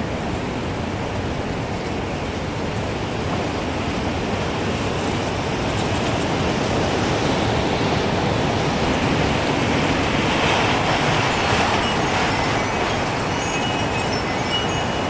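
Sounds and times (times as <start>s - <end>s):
gusting wind: 0.0s - 15.0s
wind chime tinkling: 10.6s - 15.0s.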